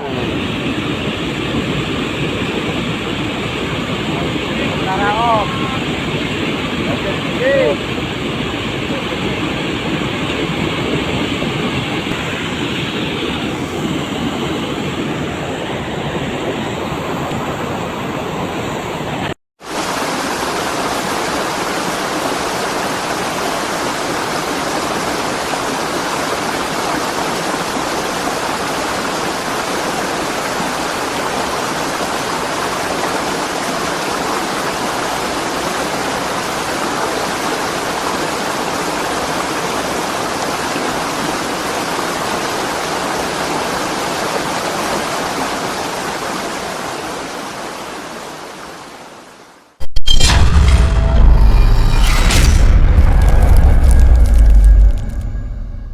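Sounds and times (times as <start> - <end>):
water rushing: 12.0 - 48.7.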